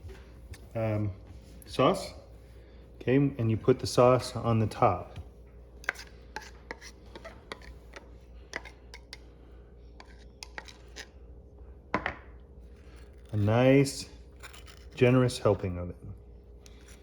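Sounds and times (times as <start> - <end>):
utensil scraping sauce on bun: 5.8 - 9.3, 9.9 - 11.3, 12.7 - 15.4.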